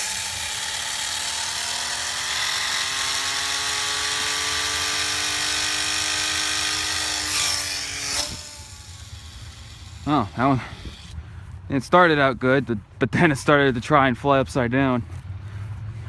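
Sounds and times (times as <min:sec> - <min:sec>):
toy plane propeller whir: 0:00.0 - 0:11.2.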